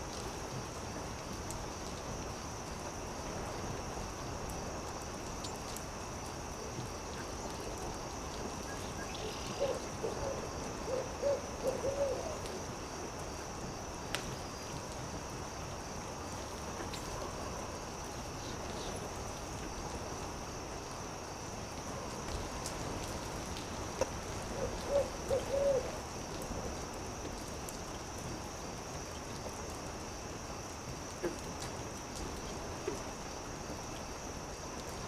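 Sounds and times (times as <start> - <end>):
campfire hissing and popping: 0.0 - 35.0
high insect trill: 2.3 - 31.3
owl hooting: 9.2 - 12.5, 24.5 - 26.0.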